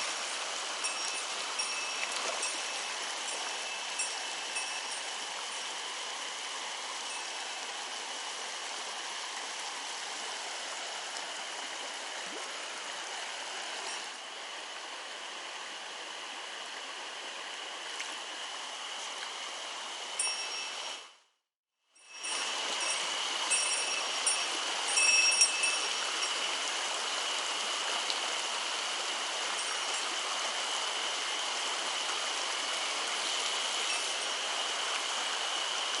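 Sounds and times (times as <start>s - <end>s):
stream water rushing: 0.0s - 21.0s, 22.1s - 36.0s
thin high tone: 0.8s - 5.7s.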